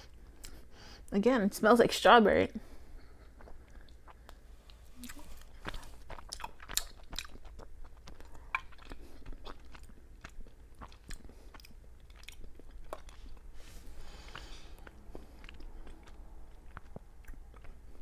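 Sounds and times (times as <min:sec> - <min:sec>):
person chewing: 0:03.0 - 0:18.0.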